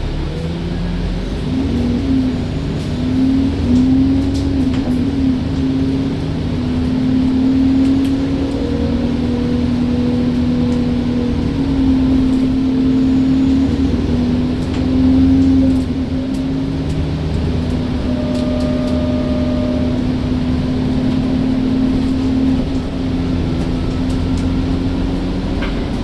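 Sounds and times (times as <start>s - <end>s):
bus diesel engine running: 0.0s - 26.0s.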